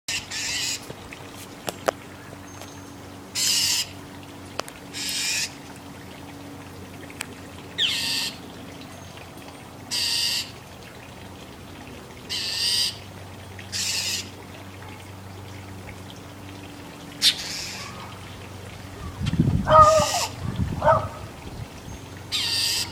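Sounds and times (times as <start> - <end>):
mockingbird harsh rasping calls: 0.1 - 0.8, 3.4 - 3.9, 5.0 - 5.6, 7.8 - 8.4, 9.9 - 10.5, 12.3 - 13.0, 13.7 - 14.3, 17.2 - 18.2, 19.0 - 21.3, 22.3 - 22.9.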